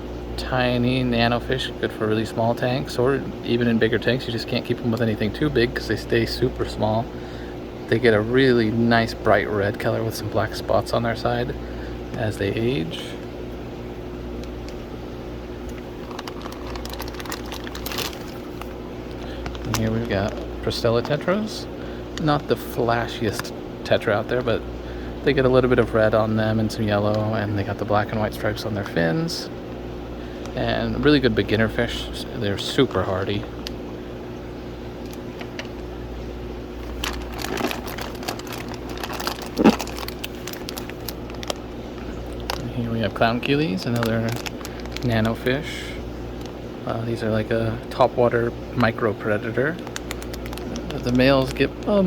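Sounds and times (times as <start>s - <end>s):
electrical hum of aquarium equipment: 0.0s - 52.0s
plastic bags crinkling and clicking: 15.6s - 21.6s, 22.2s - 23.5s, 35.0s - 35.9s, 36.8s - 46.6s, 47.8s - 52.0s.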